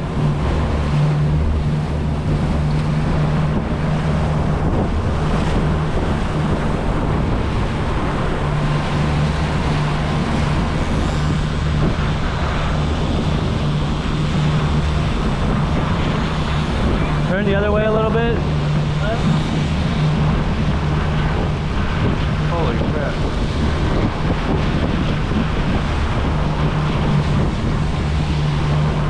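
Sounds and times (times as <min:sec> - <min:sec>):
boat engine humming: 0:00.0 - 0:29.0
water noise: 0:00.0 - 0:29.0
wind: 0:00.0 - 0:29.0.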